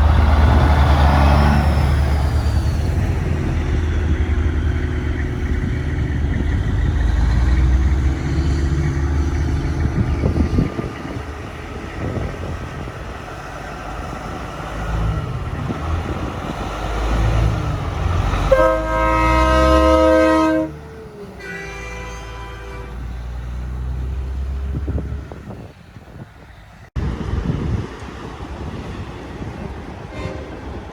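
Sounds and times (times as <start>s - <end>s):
truck engine rumbling: 0.0s - 30.9s
truck air horn chord: 18.5s - 20.8s, 21.4s - 23.1s.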